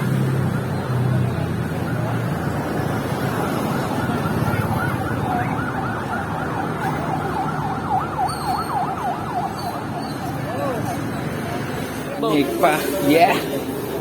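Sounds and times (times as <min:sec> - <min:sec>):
traffic rumble: 0:00.0 - 0:14.0
electronic siren yelping: 0:01.6 - 0:11.4.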